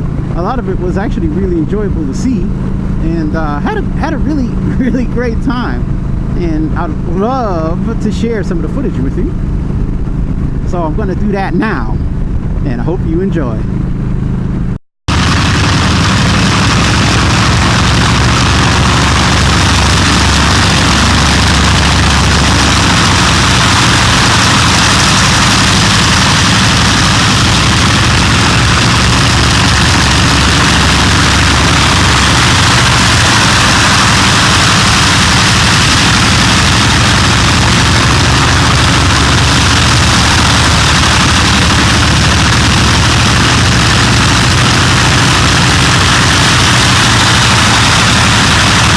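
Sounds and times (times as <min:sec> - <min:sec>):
heavy engine running: 0:00.0 - 0:48.9
loud even hiss: 0:15.1 - 0:48.9.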